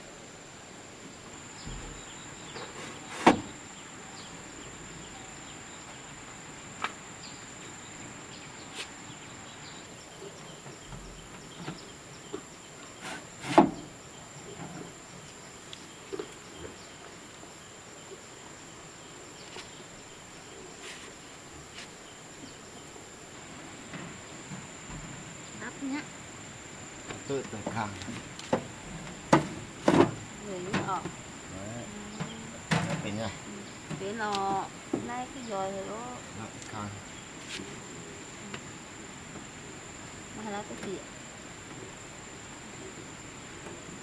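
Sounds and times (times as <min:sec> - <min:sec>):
sharp loud knocks: 0:27.1 - 0:31.2.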